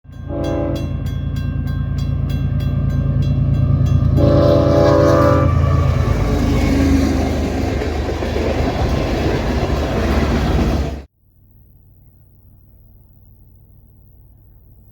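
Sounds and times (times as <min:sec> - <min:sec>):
train horn blasts: 0:00.1 - 0:01.1, 0:03.1 - 0:07.8
crossing bell ringing: 0:00.1 - 0:11.0
locomotive low rumble: 0:00.1 - 0:11.1
train wheel and rail noise: 0:00.1 - 0:11.1.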